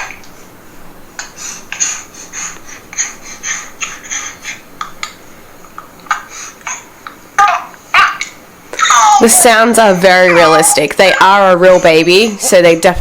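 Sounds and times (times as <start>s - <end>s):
recorded baby laughter: 5.8s - 10.9s.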